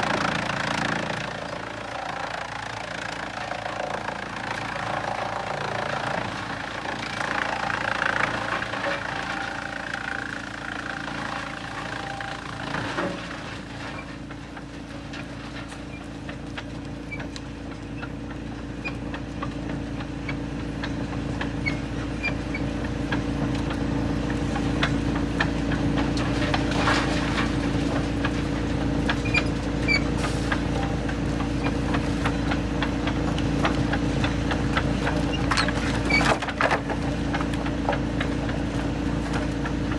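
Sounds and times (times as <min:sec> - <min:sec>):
heavy machinery droning: 0:00.0 - 0:14.4.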